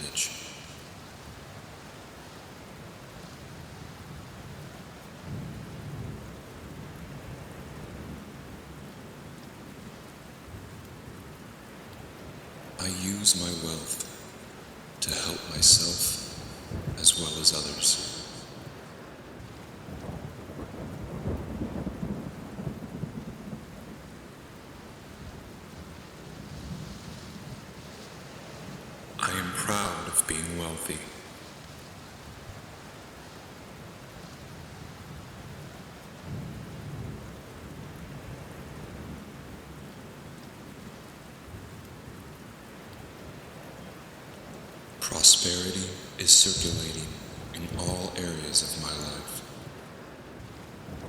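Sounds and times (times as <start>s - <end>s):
steady rain falling: 0.0s - 51.0s
low roll of thunder: 19.9s - 24.2s.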